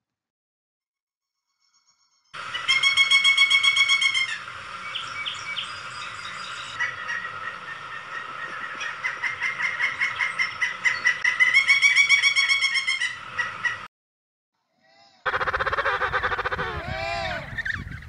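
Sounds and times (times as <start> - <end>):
woodpecker calling rapid notes: 2.4 - 13.9, 15.2 - 18.0.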